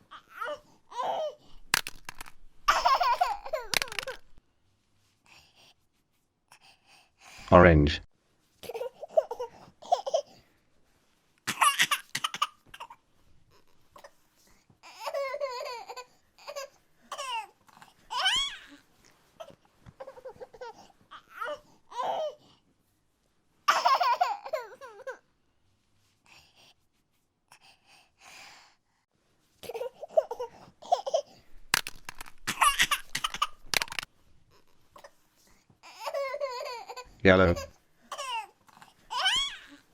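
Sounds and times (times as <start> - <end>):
small child laughing and babbling: 2.7 - 4.2, 23.7 - 25.2
clicks: 31.7 - 34.1.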